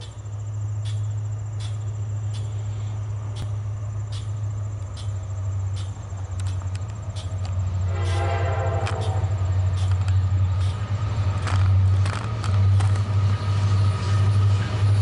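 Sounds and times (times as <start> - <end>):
crickets trilling: 0.0 - 15.0
diesel locomotive rumble: 0.0 - 15.0
faint ticks: 3.3 - 7.6.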